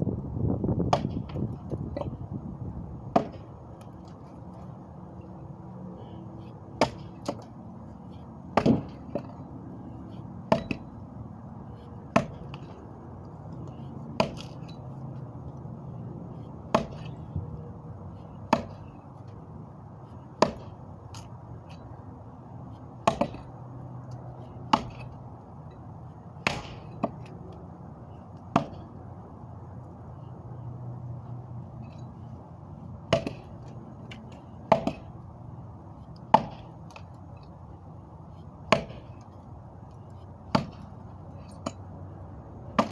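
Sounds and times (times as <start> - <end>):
sharp knocks or chops: 8.6 - 9.3.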